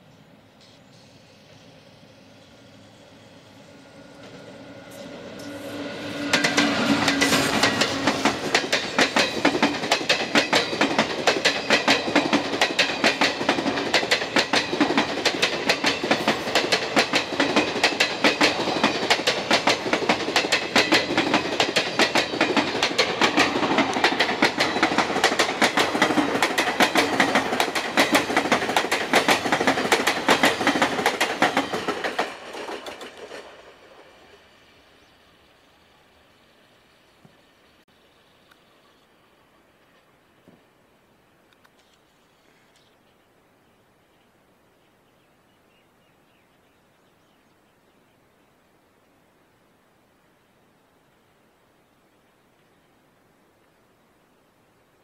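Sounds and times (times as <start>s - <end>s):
passenger train passing: 0.0s - 36.7s
wheels clacking over rail joints: 4.1s - 33.9s.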